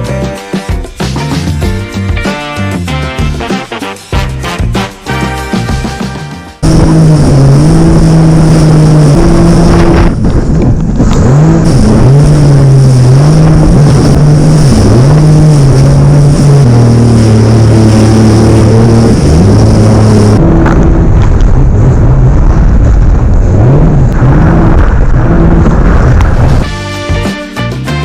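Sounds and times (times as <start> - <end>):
jet ski engine at high speed: 6.6 - 26.8.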